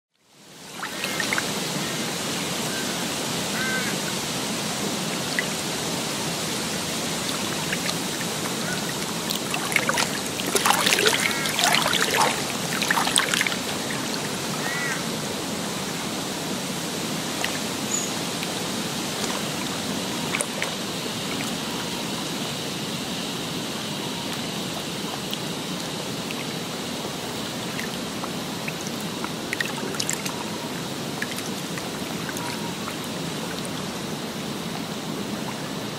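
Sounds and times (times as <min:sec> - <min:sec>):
rushing water: 0:00.2 - 0:35.9
water splashing: 0:00.7 - 0:35.9
short bird calls: 0:14.6 - 0:15.0.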